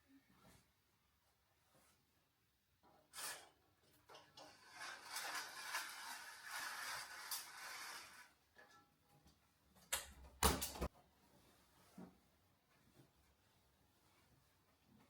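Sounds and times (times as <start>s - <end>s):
soft rustling: 11.0s - 15.0s.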